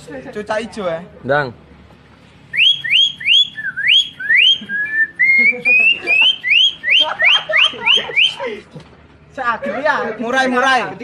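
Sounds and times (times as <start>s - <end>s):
boy whistling bird chirps: 2.6s - 7.1s.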